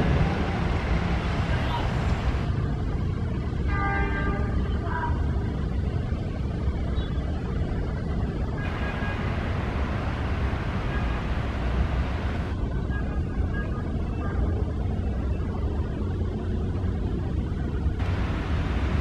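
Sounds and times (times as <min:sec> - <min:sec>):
train rumbling on rails: 0:00.0 - 0:06.2.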